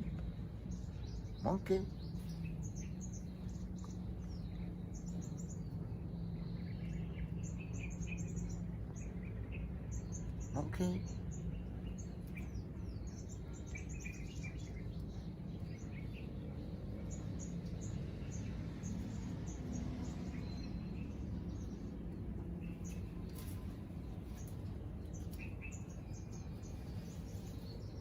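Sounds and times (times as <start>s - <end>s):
low background noise: 0.0s - 28.0s.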